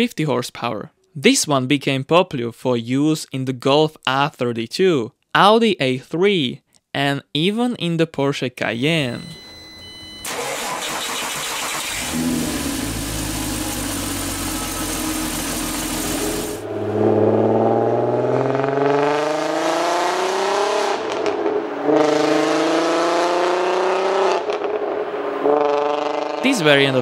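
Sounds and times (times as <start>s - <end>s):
engine running with steady hiss: 10.3s - 16.6s
car accelerating hard: 10.3s - 26.6s.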